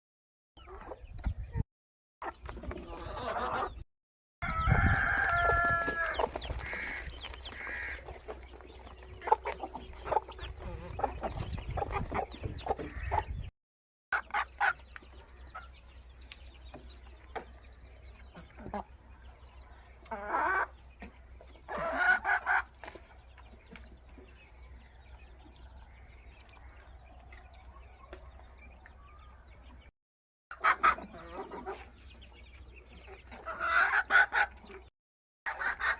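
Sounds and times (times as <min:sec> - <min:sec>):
chickens clucking: 0:00.6 - 0:01.6, 0:02.2 - 0:03.8, 0:04.4 - 0:13.5, 0:14.1 - 0:29.9, 0:30.5 - 0:34.9, 0:35.5 - 0:35.9
rooster crowing: 0:04.4 - 0:06.2.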